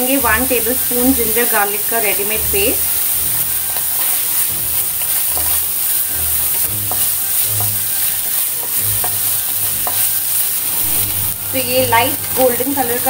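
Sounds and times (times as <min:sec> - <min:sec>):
onions sizzling in hot oil: 0:00.0 - 0:13.0
spatula ticking against pan: 0:03.5 - 0:10.4.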